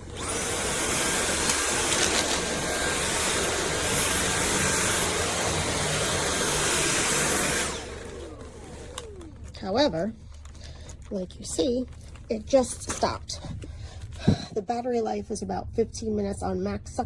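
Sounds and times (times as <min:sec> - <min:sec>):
vacuum cleaner motor whine: 0:00.0 - 0:10.5.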